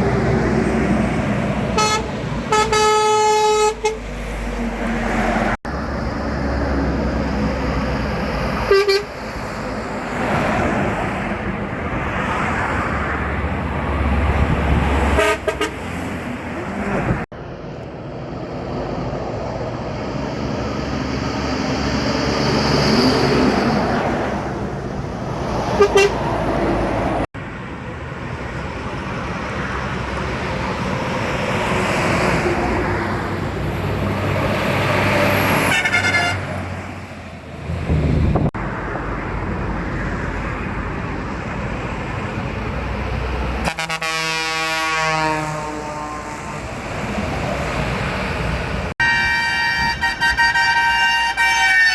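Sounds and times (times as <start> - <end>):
heavy trucks passing: 0.0 - 51.9
truck horn toot: 1.8 - 4.1, 8.6 - 9.2, 15.1 - 16.0, 25.8 - 26.3, 35.6 - 36.6, 43.6 - 46.8, 49.0 - 51.9.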